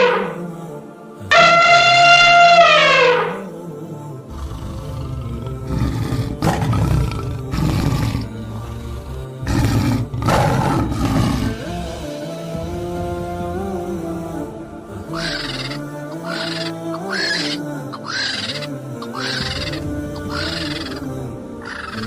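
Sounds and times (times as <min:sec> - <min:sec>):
background music: 0:00.0 - 0:22.0
large animal roaring: 0:04.3 - 0:12.0, 0:15.1 - 0:22.0.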